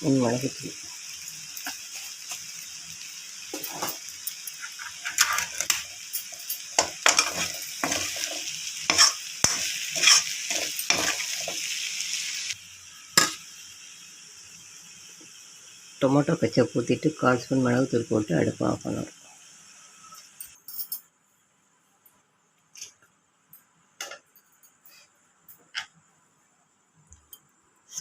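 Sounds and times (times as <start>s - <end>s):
pasta sizzling in a pan: 0.0s - 20.6s
spoon scraping and clinking pan: 3.5s - 11.7s.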